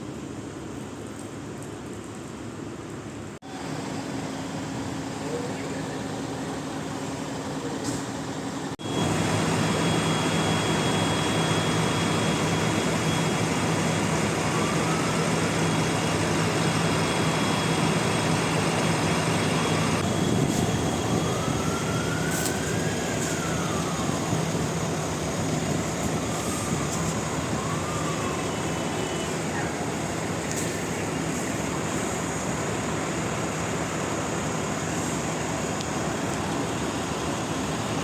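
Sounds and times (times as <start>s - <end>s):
traffic and engine hum: 0.0s - 38.0s
siren wailing: 8.4s - 38.0s.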